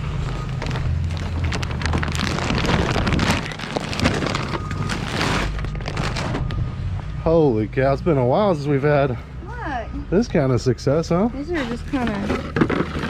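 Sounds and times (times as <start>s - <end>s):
plastic trash bags crackling: 0.0s - 6.6s, 11.5s - 13.0s
knocks of items being moved: 11.8s - 13.0s.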